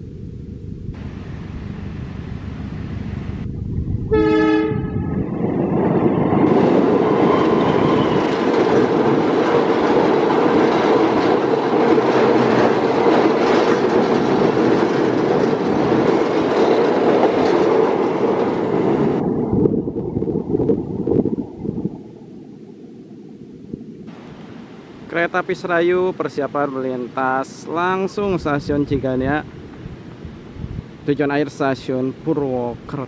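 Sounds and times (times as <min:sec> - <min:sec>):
train rumble and wheel clatter: 0:00.0 - 0:21.6
train horn blast: 0:04.1 - 0:05.3.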